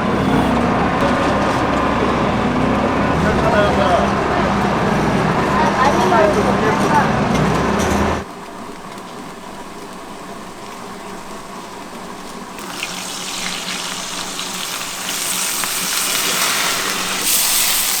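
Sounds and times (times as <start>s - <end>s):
dough deep-frying in hot oil: 8.3s - 18.0s.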